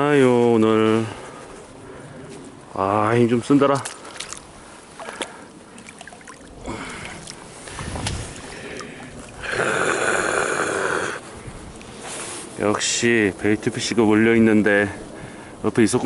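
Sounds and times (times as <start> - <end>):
fish splashing in water: 3.8 - 9.4.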